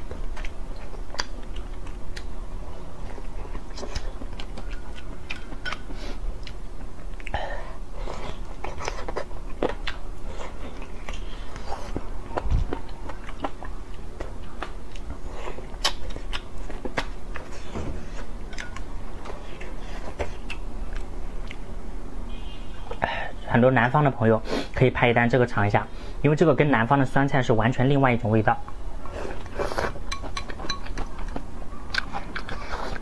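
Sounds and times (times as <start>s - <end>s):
person chewing and biting: 0.0s - 2.4s, 3.0s - 7.4s, 8.0s - 21.7s, 29.0s - 33.0s
faint steady hum: 0.0s - 33.0s.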